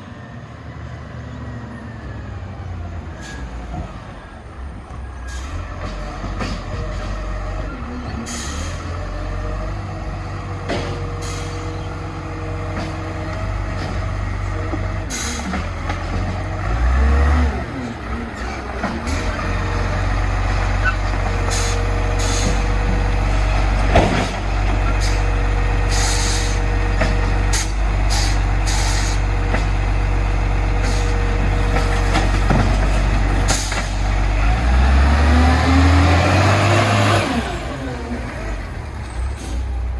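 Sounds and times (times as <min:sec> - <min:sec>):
diesel engine rumbling: 0:00.0 - 0:39.9
air brake hisses: 0:03.2 - 0:03.7, 0:05.2 - 0:05.6, 0:08.3 - 0:08.9, 0:11.2 - 0:11.8, 0:15.1 - 0:15.6, 0:21.5 - 0:22.7, 0:25.9 - 0:26.7, 0:27.5 - 0:29.2, 0:30.8 - 0:31.2, 0:39.2 - 0:39.8.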